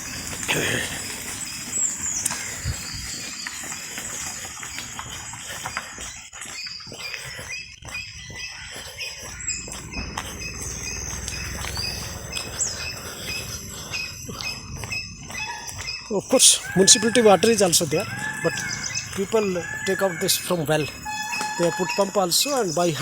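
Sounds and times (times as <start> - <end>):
sliding bird whistles: 5.7 - 23.0
steady high-pitched drone: 9.4 - 23.0.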